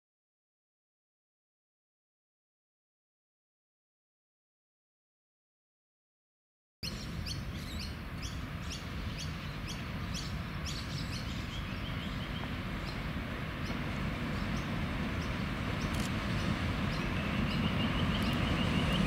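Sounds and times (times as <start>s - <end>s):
bird chirping sharply: 15.8s - 19.0s.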